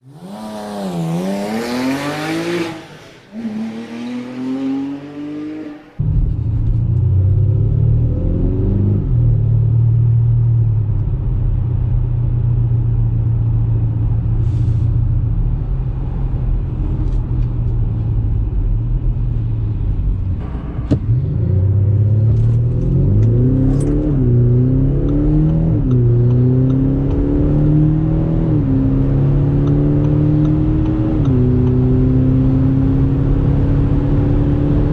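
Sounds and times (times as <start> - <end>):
car driving drone: 0.0 - 34.9.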